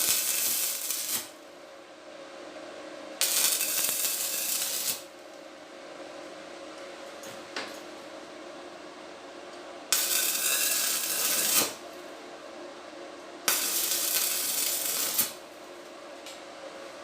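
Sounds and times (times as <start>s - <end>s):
steady hissing bursts: 0.0s - 1.3s, 3.2s - 5.0s, 13.5s - 15.4s.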